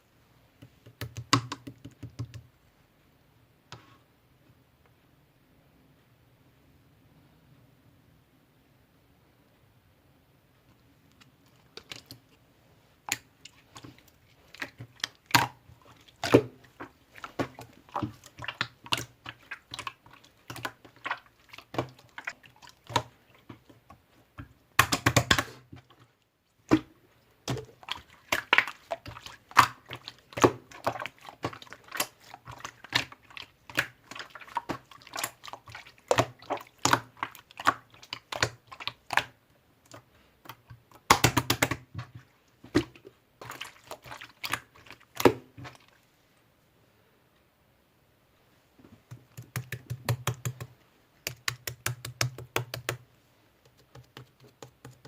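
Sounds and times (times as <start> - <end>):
slime squishing and clicking: 14.6 - 23.7, 49.1 - 53.0.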